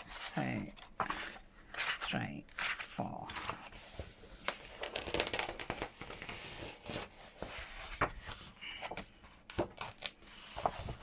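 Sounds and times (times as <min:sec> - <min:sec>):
paper rustling and shuffling: 0:00.2 - 0:11.0.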